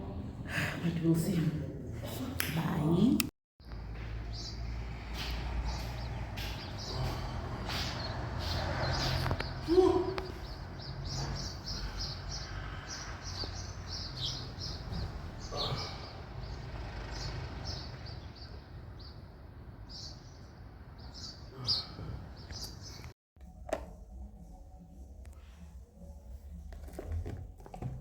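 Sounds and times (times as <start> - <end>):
small birds chirping: 3.6 - 23.1.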